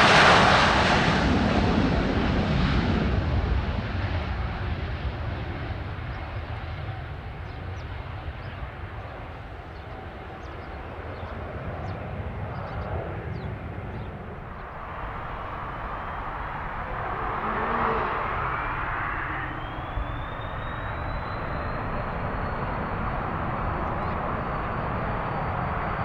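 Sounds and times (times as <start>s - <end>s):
jet engines running: 14.1s - 26.0s
rising jet whine: 14.4s - 26.0s.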